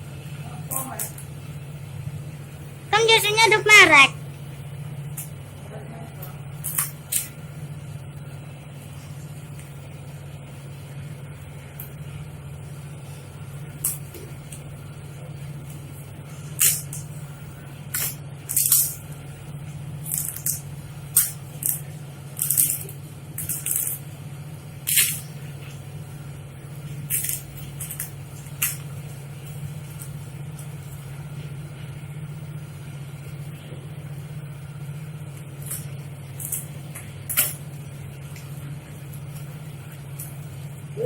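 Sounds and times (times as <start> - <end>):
plastic packaging crinkling: 21.2 - 24.0.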